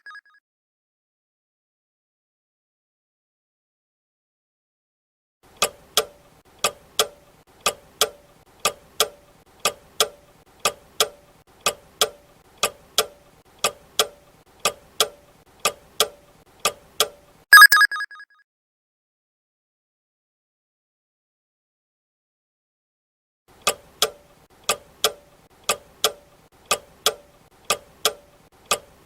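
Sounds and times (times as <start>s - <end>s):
clock ticking: 5.6s - 17.8s, 23.6s - 29.0s.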